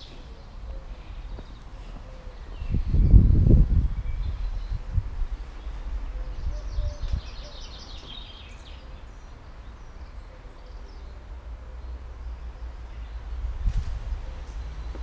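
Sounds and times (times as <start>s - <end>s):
wind rumble on microphone: 2.4s - 7.6s, 13.2s - 15.0s.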